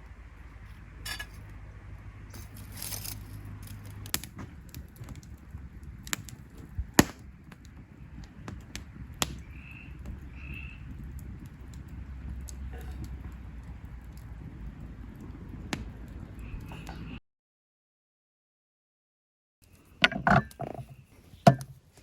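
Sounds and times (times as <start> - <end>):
light clicks and knocks: 20.0 - 21.8.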